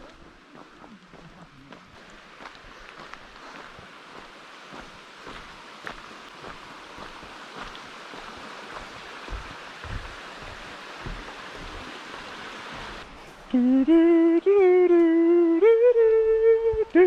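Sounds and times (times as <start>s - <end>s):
steady rushing noise: 0.0s - 13.4s
soft low thumps: 8.2s - 14.2s, 15.9s - 17.0s.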